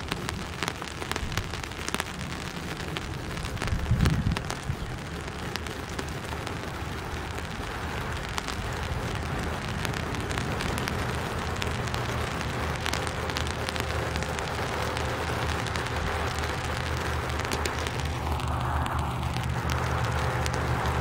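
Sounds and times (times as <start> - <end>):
rain hissing: 0.0 - 21.0
low rumble: 6.5 - 21.0
sharp drop ticks: 7.3 - 21.0.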